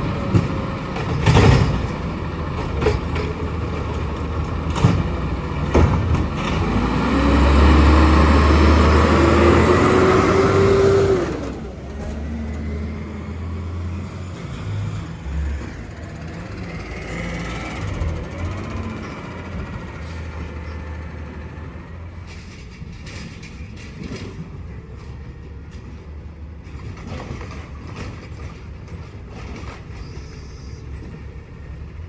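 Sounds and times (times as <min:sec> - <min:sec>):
garbage truck engine revving: 0:00.0 - 0:22.3.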